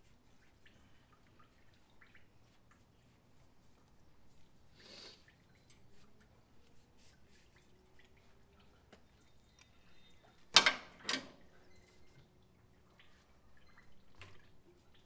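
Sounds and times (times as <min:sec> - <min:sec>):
faint ticks and taps: 0:08.8 - 0:09.8.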